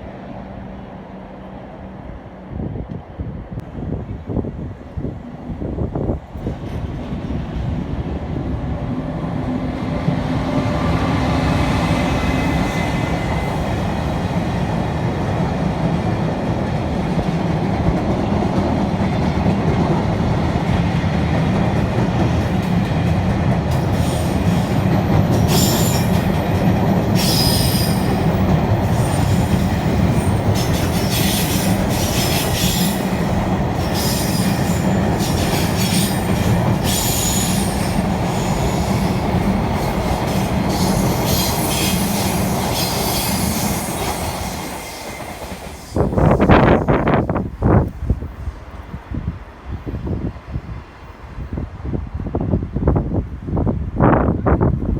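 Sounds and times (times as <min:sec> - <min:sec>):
train rumbling on rails: 0:00.0 - 0:54.9
train wheels squealing and rattling: 0:22.1 - 0:47.3.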